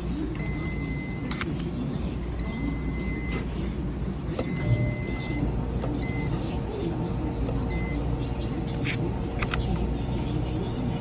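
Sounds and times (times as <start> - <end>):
electronic beeper high tone: 4.4 - 6.3.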